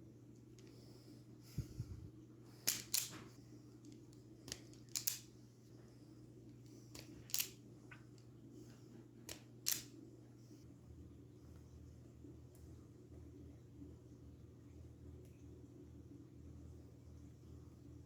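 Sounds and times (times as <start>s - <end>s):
faint steady hum: 0.0s - 18.0s
model track pieces snapping together: 2.6s - 3.2s, 4.5s - 5.3s, 7.0s - 7.6s, 9.3s - 9.9s.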